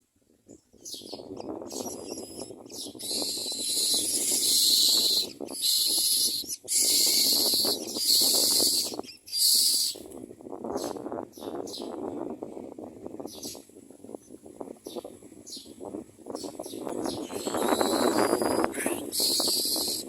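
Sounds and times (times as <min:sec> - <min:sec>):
nestlings screeching: 0:01.7 - 0:10.0, 0:17.0 - 0:20.0.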